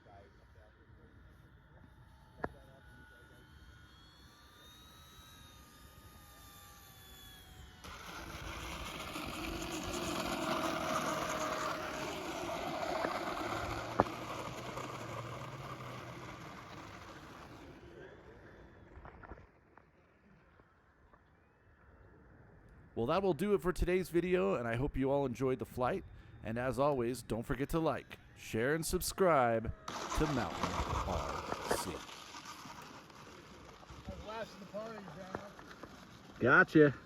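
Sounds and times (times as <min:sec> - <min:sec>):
motor and propeller whine: 0:00.0 - 0:37.0
rc plane propeller buzz: 0:00.2 - 0:19.3, 0:27.5 - 0:37.0.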